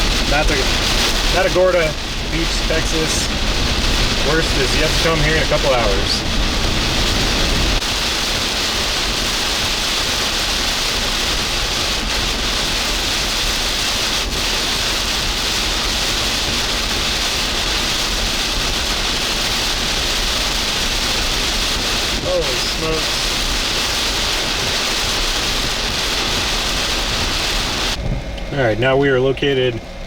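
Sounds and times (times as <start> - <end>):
low rumble: 0.0 - 7.9
heavy wind-driven rain: 0.0 - 28.9.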